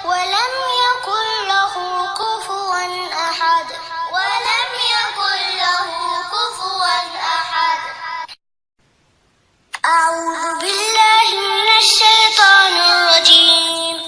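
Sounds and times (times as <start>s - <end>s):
high-pitched voice chanting: 9.8s - 14.0s.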